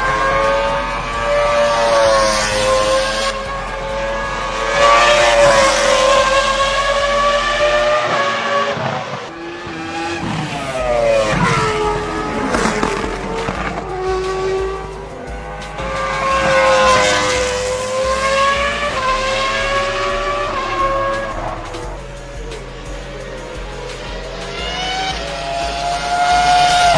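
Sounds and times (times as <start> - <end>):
car engine revving hard: 0.0 - 26.9.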